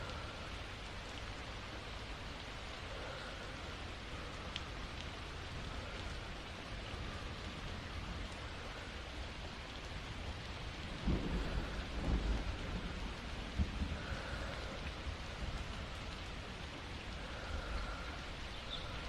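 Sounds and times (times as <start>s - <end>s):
steady rain: 0.0s - 19.0s
thunder rolling: 11.0s - 14.4s.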